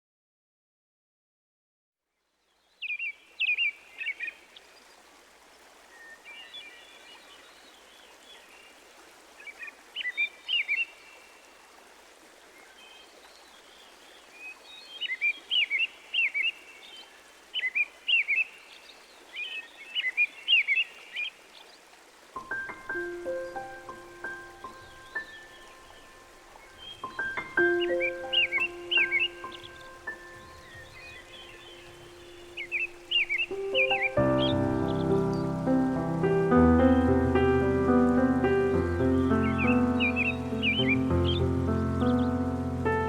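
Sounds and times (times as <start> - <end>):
steady background hiss: 2.4 - 43.0
songbirds whistling: 23.0 - 35.5, 38.8 - 43.0.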